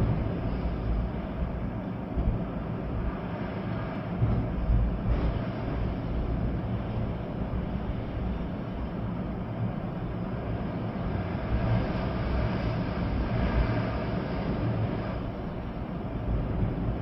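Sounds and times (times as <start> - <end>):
rain: 0.0 - 17.0
wind buffeting microphone: 0.0 - 17.0
wind gusting through trees: 0.0 - 17.0.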